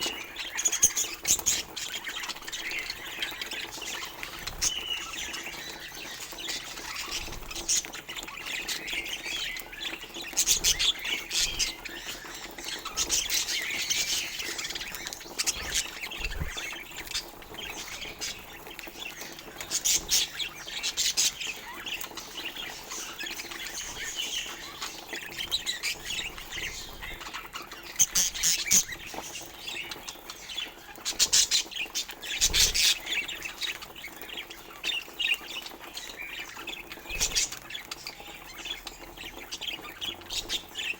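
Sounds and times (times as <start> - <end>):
budgerigars chattering and chirping: 0.0 - 40.9.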